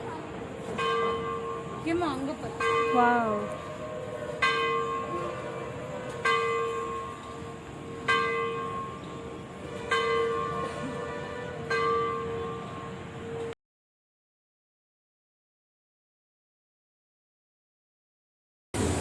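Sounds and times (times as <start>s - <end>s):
large temple bell ringing: 0.0s - 13.6s.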